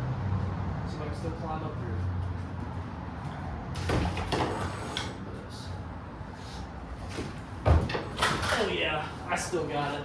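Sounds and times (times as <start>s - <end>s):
person clambering with knocks and scrapes: 2.4s - 5.2s, 6.4s - 9.8s.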